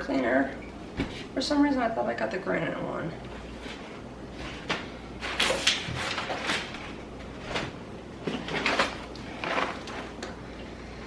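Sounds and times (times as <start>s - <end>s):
packaging rustling: 3.4s - 10.2s.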